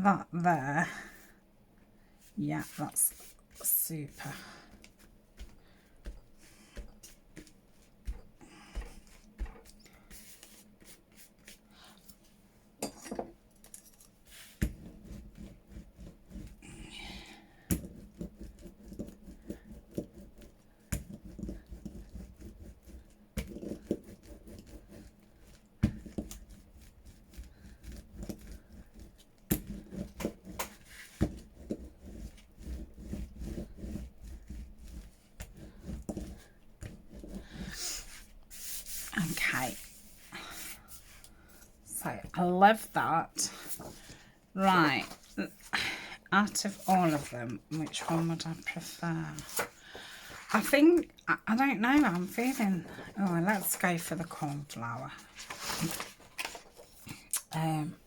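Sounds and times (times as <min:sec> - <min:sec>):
paper rubbing and rustling: 0:46.7 - 0:50.7, 0:51.9 - 0:57.0.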